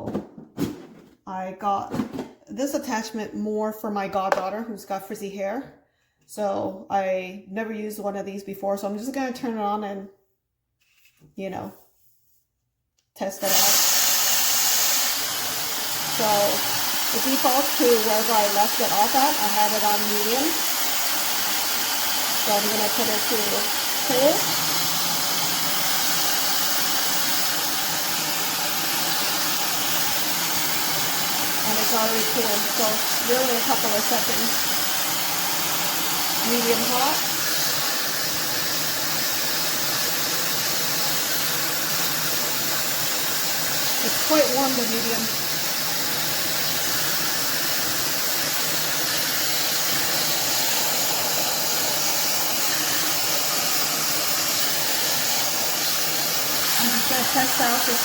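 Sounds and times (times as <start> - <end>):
hair dryer blowing air: 13.4 - 58.0.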